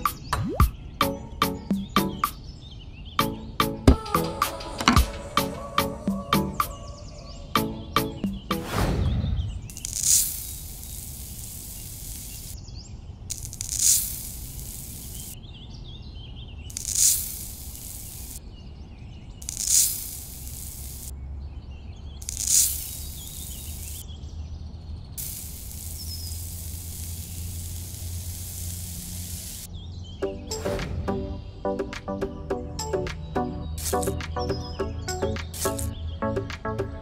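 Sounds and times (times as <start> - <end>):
sand pouring onto plastic tray: 9.8 - 12.5, 13.3 - 15.3, 16.7 - 18.4, 19.4 - 21.1, 22.2 - 23.8.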